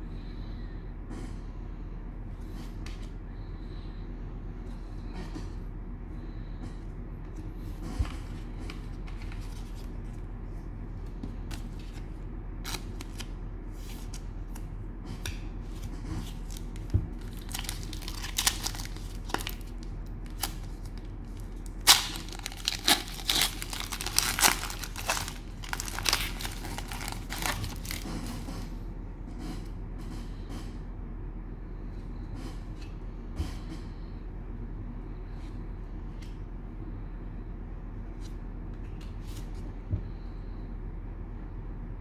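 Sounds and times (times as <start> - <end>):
steady low hum: 0.0 - 42.0
cellophane wrapper tearing: 16.4 - 28.1.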